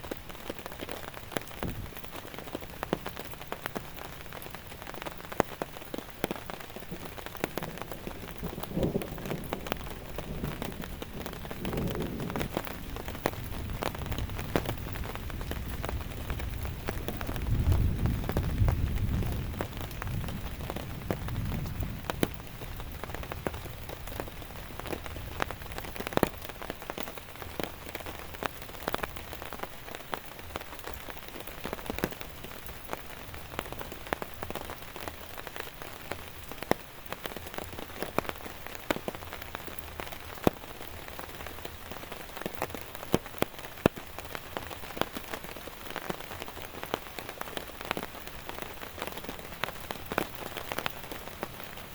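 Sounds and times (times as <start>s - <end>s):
heavy raindrops tapping: 0.0s - 51.9s.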